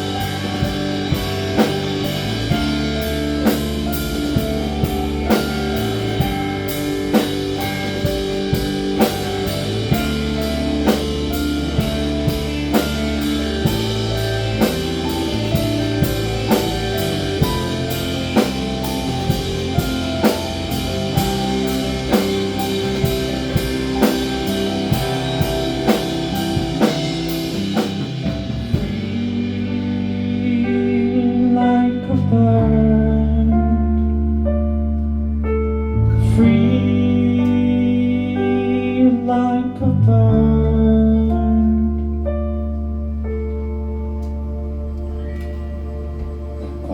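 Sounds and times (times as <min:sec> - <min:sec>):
drum kit beat: 0:00.0 - 0:30.8
guitar chords: 0:00.0 - 0:46.9.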